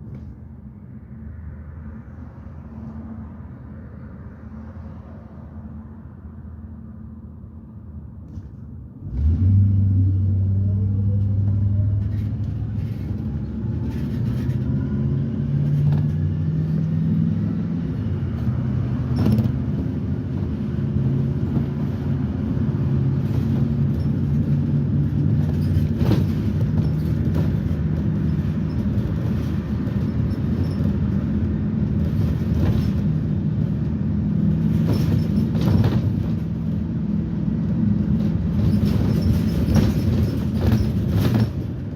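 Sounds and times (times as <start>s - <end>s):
bus engine and drive whine: 0.0s - 41.9s
rattles and knocks: 23.2s - 36.8s, 38.0s - 41.9s.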